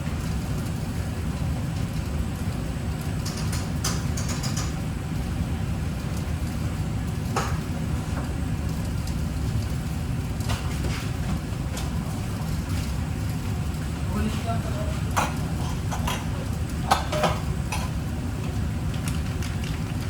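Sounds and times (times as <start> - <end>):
low mechanical rumble: 0.0 - 20.0
light clicks and clatters: 3.1 - 4.8, 18.4 - 20.0.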